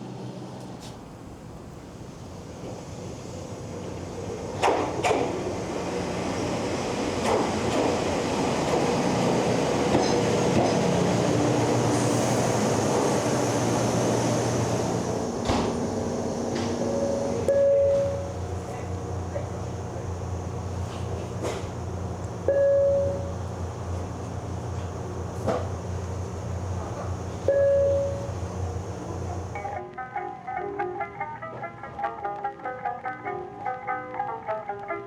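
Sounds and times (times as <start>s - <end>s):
train rumbling: 0.0s - 29.8s
sharp train clacks: 3.8s - 5.6s, 7.1s - 20.1s, 20.7s - 29.8s.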